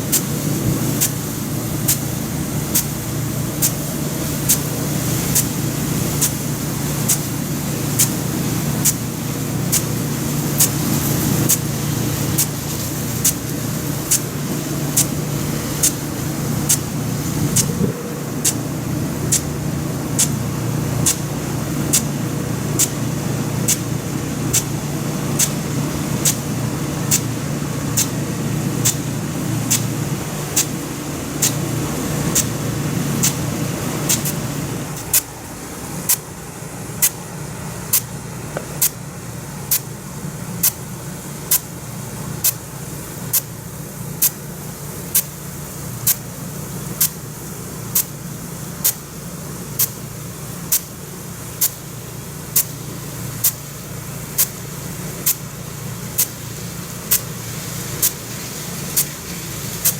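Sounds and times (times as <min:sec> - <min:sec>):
water jet hissing: 0:00.0 - 0:59.9
sprinkler arm clicking: 0:00.1 - 0:03.0, 0:03.6 - 0:35.4, 0:36.0 - 0:36.3, 0:36.9 - 0:39.0, 0:39.7 - 0:40.0, 0:40.6 - 0:41.8, 0:48.0 - 0:48.2, 0:56.1 - 0:56.4, 0:57.0 - 0:58.3.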